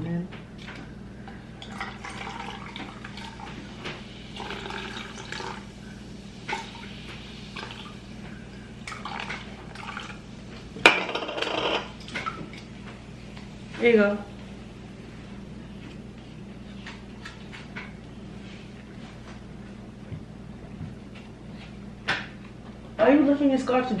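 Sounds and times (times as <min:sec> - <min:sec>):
soda pouring into cup: 0:01.6 - 0:05.8, 0:06.5 - 0:08.0.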